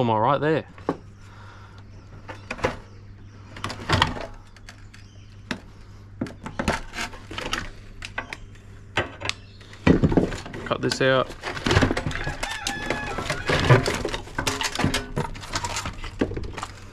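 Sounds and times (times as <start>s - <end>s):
steady low hum: 0.0s - 16.9s
dishwasher parts clicking and clattering: 10.3s - 16.7s.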